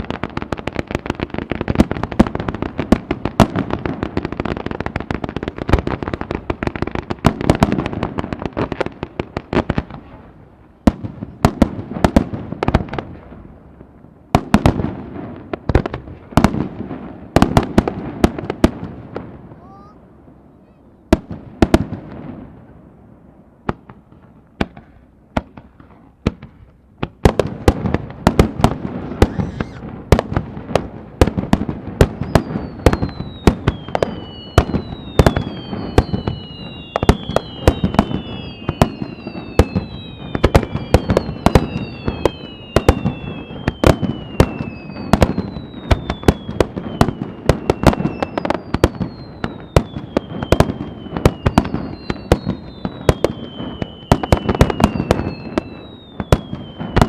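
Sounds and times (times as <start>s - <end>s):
falling firework whistles: 28.9s - 30.0s, 32.0s - 57.0s.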